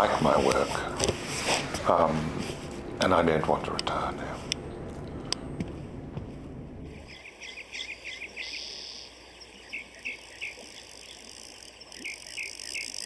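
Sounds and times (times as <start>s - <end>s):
insect buzz: 4.4s - 13.0s
bird chirps: 7.0s - 13.0s.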